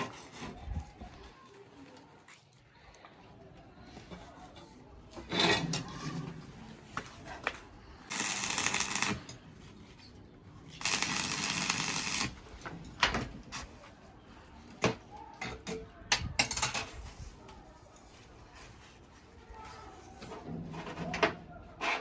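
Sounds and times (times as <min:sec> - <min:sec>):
welding arc crackle: 0:08.1 - 0:09.4, 0:10.8 - 0:12.4.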